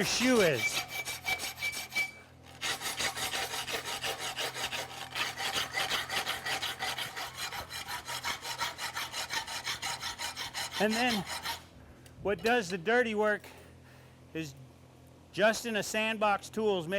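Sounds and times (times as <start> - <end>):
sanding block on steel: 0.0 - 11.6.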